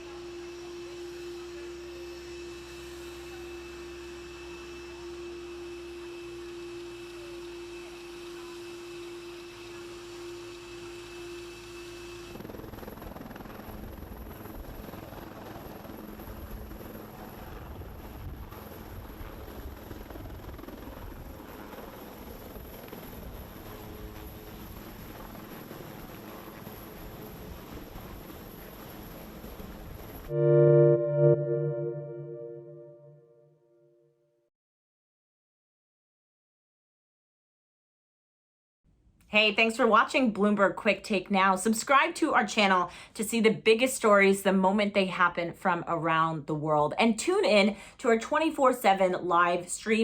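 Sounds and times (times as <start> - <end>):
helicopter rotor and engine: 0.0 - 30.3
helicopter turbine whine: 0.1 - 33.0.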